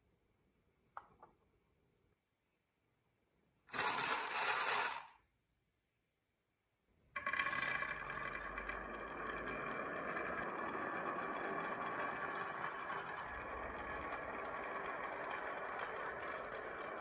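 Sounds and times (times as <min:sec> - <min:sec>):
marbles clattering on wooden run: 0:03.7 - 0:05.1, 0:07.2 - 0:17.0.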